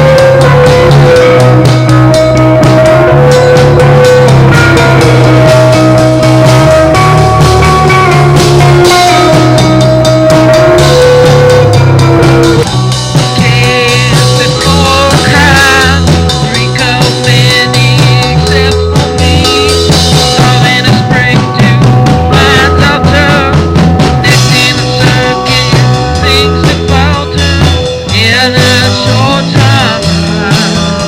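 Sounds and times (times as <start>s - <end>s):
warbling high notes: 0.0s - 16.6s
rock music with drums and bass: 0.0s - 31.0s.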